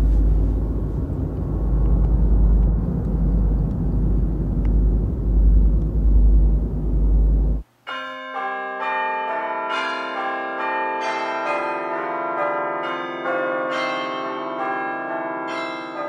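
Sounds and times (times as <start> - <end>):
bell-like struck tones melody: 7.9 - 16.0.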